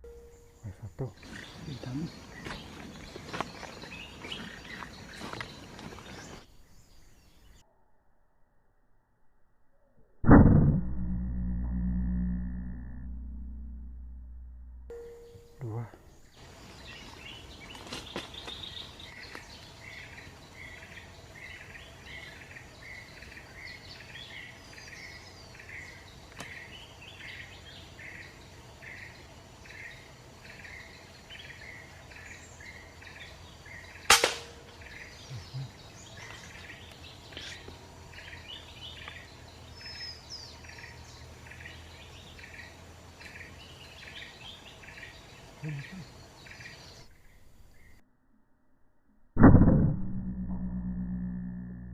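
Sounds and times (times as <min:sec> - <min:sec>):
night insects chirping: 0:00.1 - 0:07.8, 0:14.9 - 0:48.0
air rifle shot: 0:34.1 - 0:34.7.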